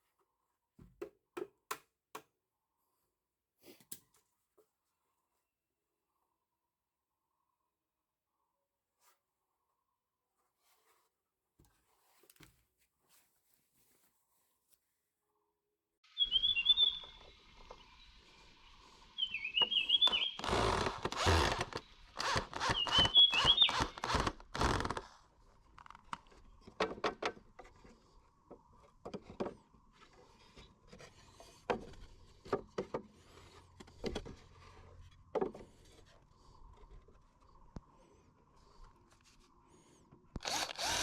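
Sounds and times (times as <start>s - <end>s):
light knocks and taps: 0.8s - 2.3s
bird chirping: 16.1s - 20.6s, 22.7s - 24.0s
hand tool scraping wood: 20.2s - 25.0s, 40.4s - 41.0s.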